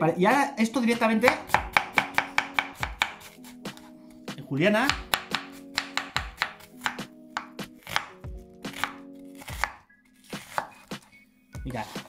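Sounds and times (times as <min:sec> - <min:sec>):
knife chopping on cutting board: 0:00.9 - 0:04.0, 0:04.8 - 0:11.1.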